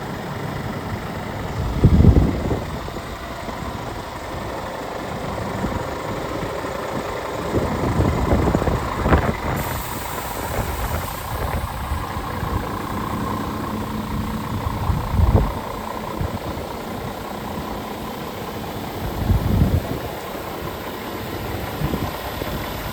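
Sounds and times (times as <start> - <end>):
diesel truck idling: 0.0 - 22.9.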